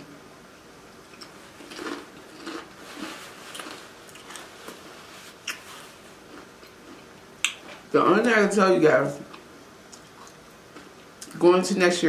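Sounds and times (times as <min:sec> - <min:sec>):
chewing with small crunches: 0:01.1 - 0:07.9, 0:09.2 - 0:11.4.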